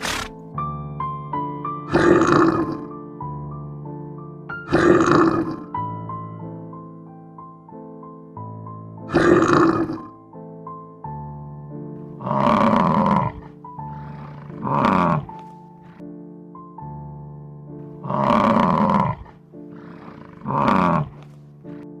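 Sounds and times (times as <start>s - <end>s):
keyboard chords music: 0.3s - 22.0s
large animal calling: 1.9s - 2.9s, 4.7s - 5.8s, 9.1s - 10.1s, 12.2s - 15.5s, 18.0s - 21.3s.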